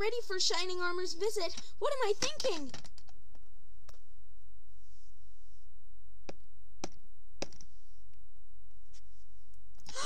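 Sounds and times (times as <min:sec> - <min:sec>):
plastic toy figures clicking: 0:01.5 - 0:03.1.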